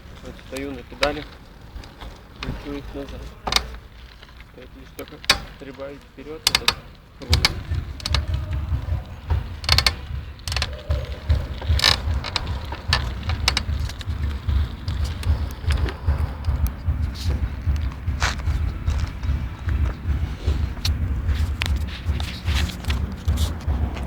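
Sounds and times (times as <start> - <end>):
bicycle drivetrain clicking: 0.0 - 24.0
low rumble: 7.2 - 24.0.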